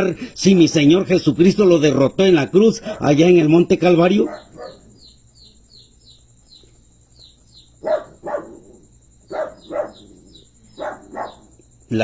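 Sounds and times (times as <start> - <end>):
dog barking: 2.8 - 3.3, 4.0 - 5.1, 7.8 - 11.6
small high chirps: 4.2 - 12.0.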